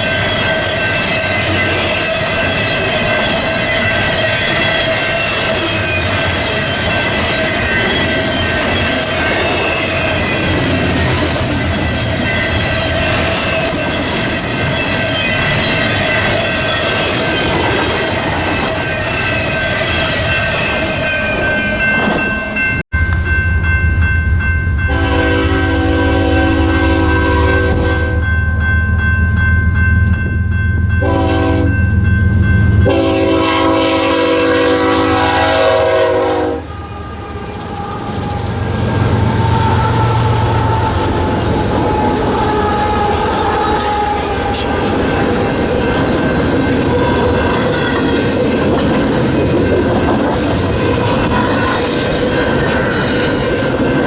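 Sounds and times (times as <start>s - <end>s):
high squealing wheels: 0.0s - 28.2s, 36.5s - 54.0s
freight train cars rolling: 0.0s - 54.0s
low diesel rumble: 23.0s - 25.8s
locomotive air horn blasts: 24.8s - 28.3s, 31.0s - 31.8s, 32.8s - 44.8s.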